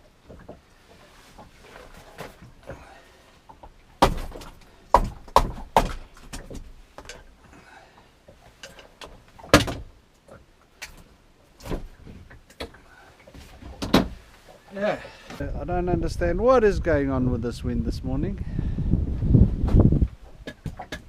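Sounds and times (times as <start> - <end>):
hard knocks in a boat: 3.6 - 7.3, 9.0 - 10.0, 13.4 - 14.3, 19.6 - 21.0.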